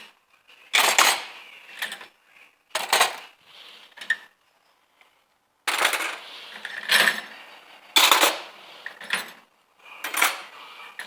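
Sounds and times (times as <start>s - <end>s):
metal cutlery clattering: 8.0s - 8.5s, 10.0s - 10.6s.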